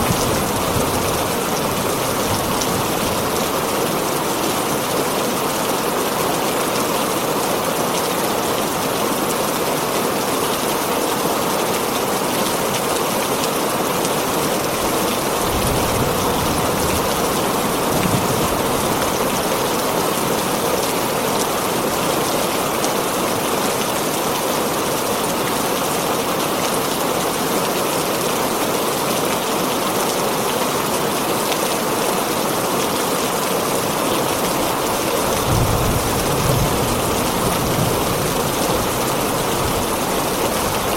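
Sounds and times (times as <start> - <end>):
heavy rain on a tin roof: 0.0 - 40.9
low thunder rumbles: 35.4 - 39.8.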